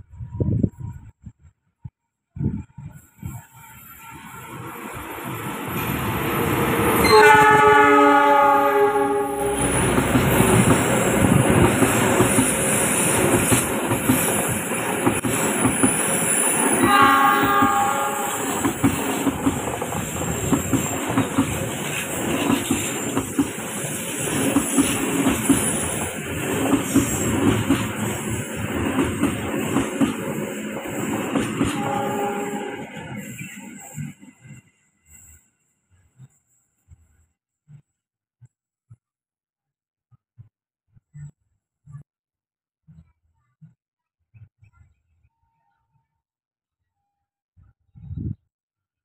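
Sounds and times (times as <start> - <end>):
train rumbling by: 2.4 - 36.9
locomotive horn: 7.0 - 9.9, 16.8 - 18.6, 31.7 - 33.0.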